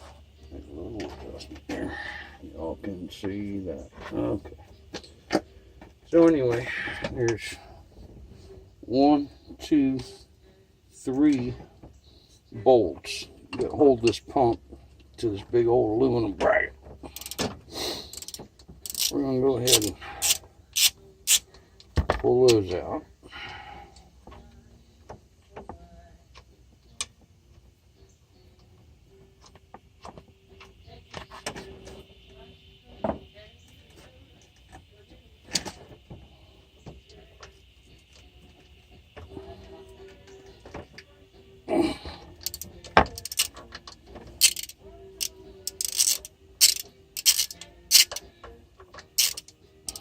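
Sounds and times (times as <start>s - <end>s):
hand tools clicking on bolts: 17.1s - 17.5s, 18.1s - 21.4s, 42.3s - 48.2s, 49.2s - 50.0s.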